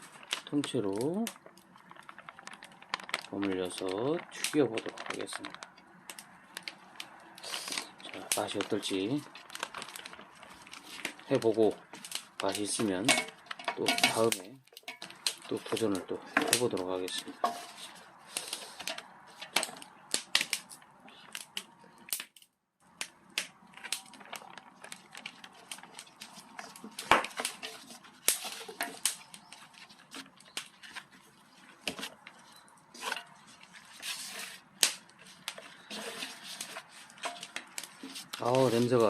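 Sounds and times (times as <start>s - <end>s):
bowls and utensils clattering: 13.0s - 16.7s, 17.3s - 18.0s, 35.8s - 38.2s.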